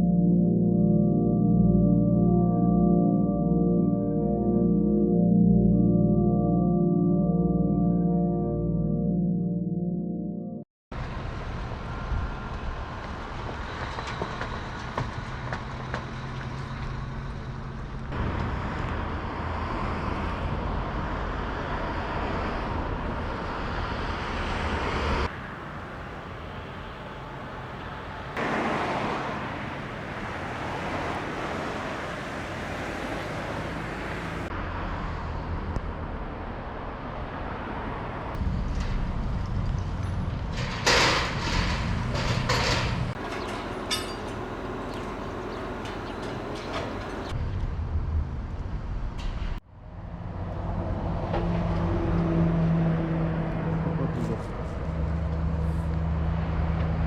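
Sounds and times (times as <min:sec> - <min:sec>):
cars passing: 0:18.1 - 0:39.0, 0:42.5 - 0:47.4, 0:49.9 - 0:57.0.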